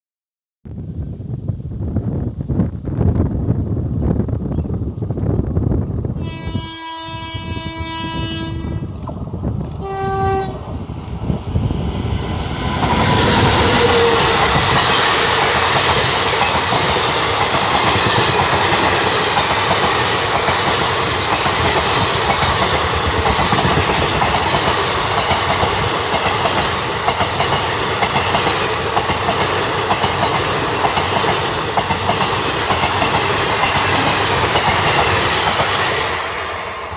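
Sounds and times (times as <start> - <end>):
locomotive horn blasts: 6.2 - 8.9, 9.8 - 10.6
train wheels clattering over rails: 10.5 - 36.9.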